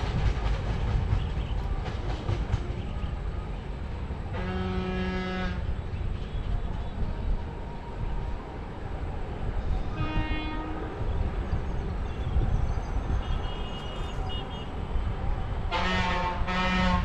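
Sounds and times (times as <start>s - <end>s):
train rumbling: 0.0s - 17.0s
train horn blasts: 4.3s - 5.8s, 9.8s - 11.3s, 15.6s - 17.0s.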